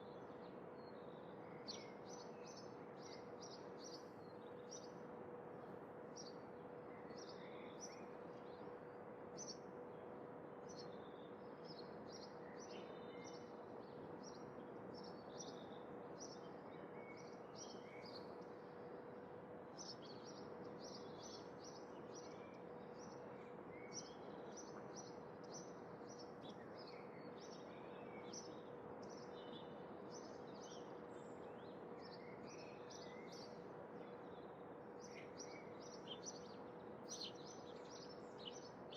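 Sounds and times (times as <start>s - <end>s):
small birds chirping: 35.0s - 38.9s.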